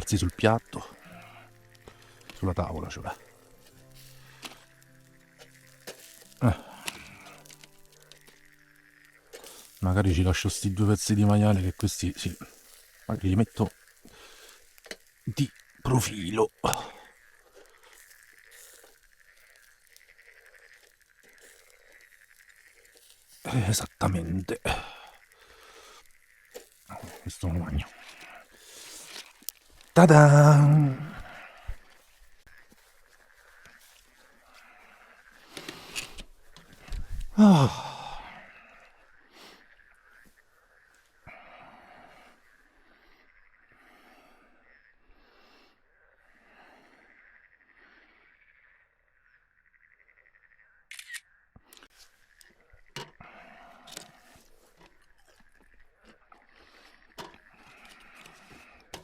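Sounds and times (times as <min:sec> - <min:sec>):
frogs croaking: 0:00.0 - 0:59.0
person sighing exhale: 0:37.3 - 0:38.4.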